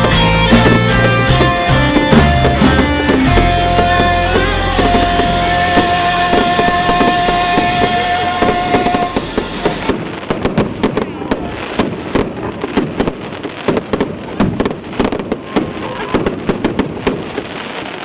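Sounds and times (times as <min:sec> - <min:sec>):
music with a held note: 0:00.0 - 0:09.8
fireworks crackling: 0:00.0 - 0:18.0.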